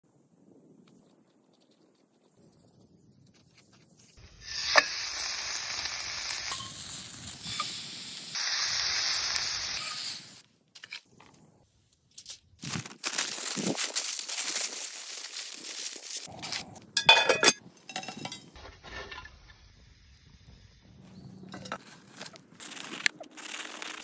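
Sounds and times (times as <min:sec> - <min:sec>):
meat sizzling in a pan: 0:04.2 - 0:10.4
crackling: 0:12.1 - 0:17.0, 0:17.8 - 0:24.0.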